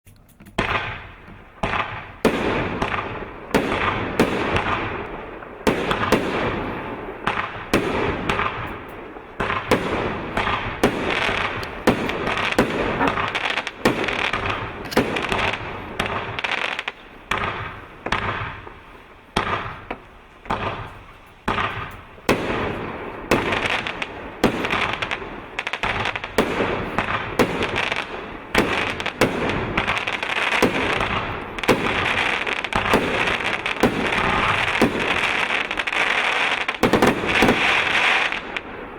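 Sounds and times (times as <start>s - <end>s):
crackling firework hiss: 0.6s - 38.9s
firework reports: 0.6s - 38.9s.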